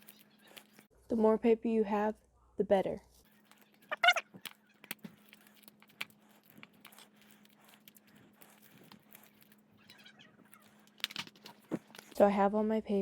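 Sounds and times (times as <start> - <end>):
scissors snipping paper: 0.0 - 0.9, 3.4 - 12.2
paper rustling: 3.3 - 12.2.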